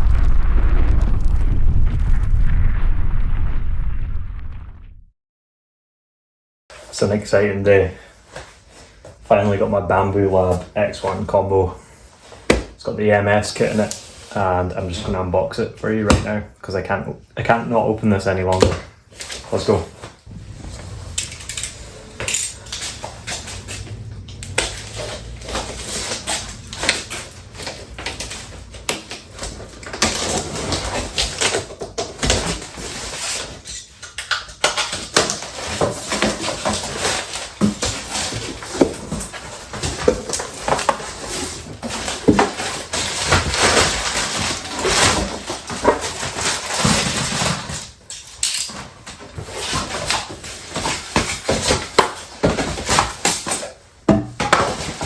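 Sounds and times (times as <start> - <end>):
cardboard box rustling and knocking: 49.4 - 53.3, 54.1 - 55.0.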